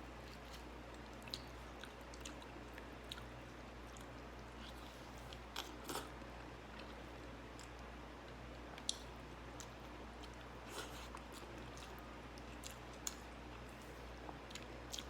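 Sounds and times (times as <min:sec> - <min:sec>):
steady low hum: 0:00.0 - 0:15.0
person chewing food: 0:00.2 - 0:15.0.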